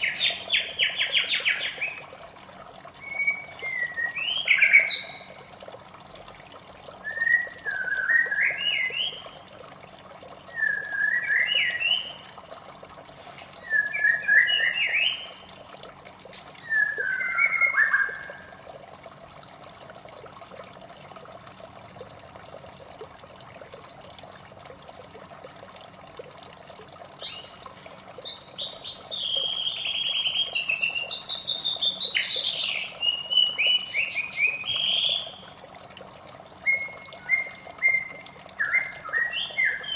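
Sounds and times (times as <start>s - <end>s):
running water: 0.0s - 39.9s
bird singing whistled phrases: 3.0s - 5.3s, 7.0s - 9.2s, 10.5s - 12.2s, 13.6s - 15.4s, 16.6s - 18.5s, 28.3s - 35.4s, 36.6s - 39.9s.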